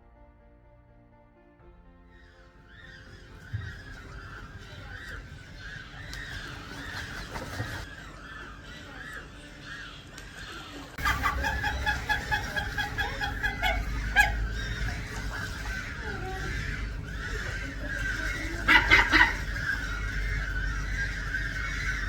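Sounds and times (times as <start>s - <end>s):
seabird colony calling: 2.1s - 22.0s
bird rapid repeated calls: 2.7s - 22.0s
low rumble: 11.0s - 22.0s.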